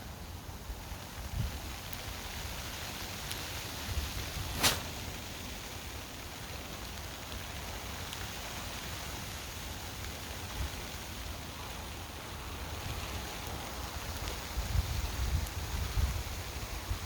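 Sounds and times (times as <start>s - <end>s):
wind-driven snow hissing: 0.0s - 17.0s
sharp crack: 4.4s - 5.4s
wind gusts buffeting microphone: 12.5s - 17.0s.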